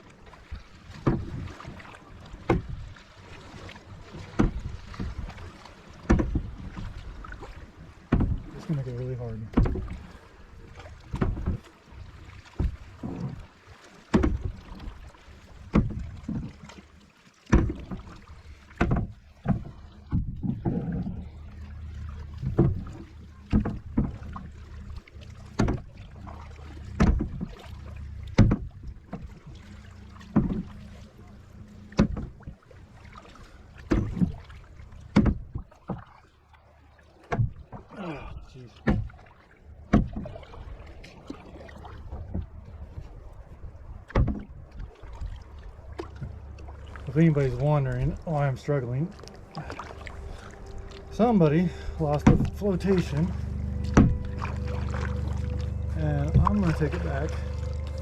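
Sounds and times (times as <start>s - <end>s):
kayak paddle splashes: 0.0s - 58.0s
steady low rumble: 20.2s - 32.4s, 45.4s - 58.0s.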